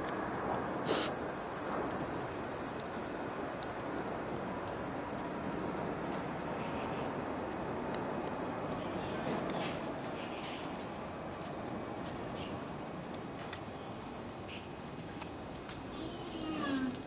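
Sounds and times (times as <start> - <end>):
rain hissing: 0.0 - 4.7.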